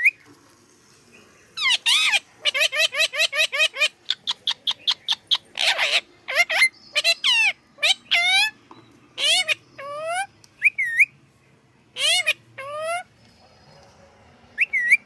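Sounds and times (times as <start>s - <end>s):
parrot calling: 1.6s - 8.6s, 9.2s - 11.2s, 11.9s - 13.1s, 14.6s - 15.0s.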